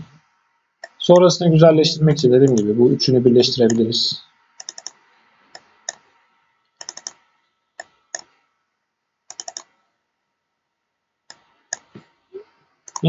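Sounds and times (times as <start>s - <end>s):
keyboard keys clicking: 4.6s - 5.0s, 6.8s - 7.2s, 9.3s - 9.7s.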